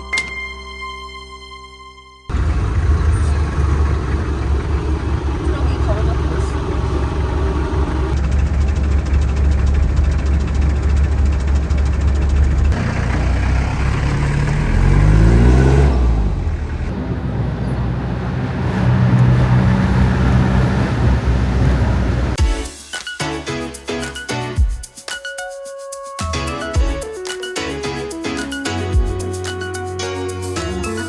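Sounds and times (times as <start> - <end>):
vehicle engine running and revving: 2.3 - 22.4.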